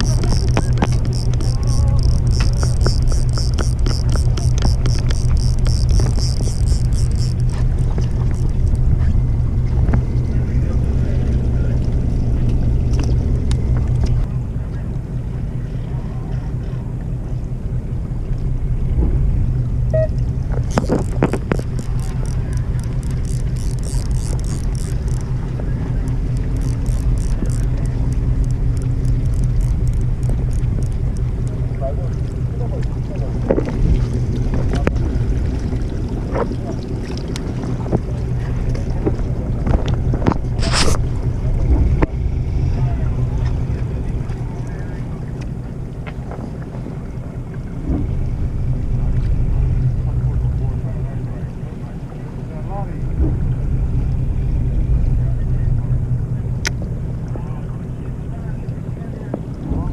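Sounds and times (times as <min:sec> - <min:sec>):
short clicks and rattles: 0:00.0 - 0:08.8, 0:20.5 - 0:35.0
boat engine humming: 0:00.0 - 0:59.9
wind on microphone: 0:00.0 - 0:59.9.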